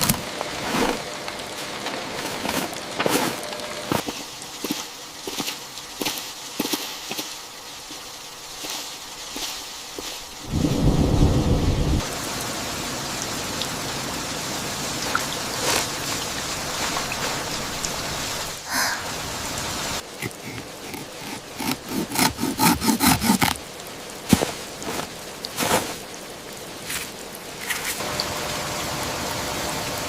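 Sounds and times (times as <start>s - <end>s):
rain hissing: 0.0s - 30.0s
low rumble: 10.5s - 12.0s.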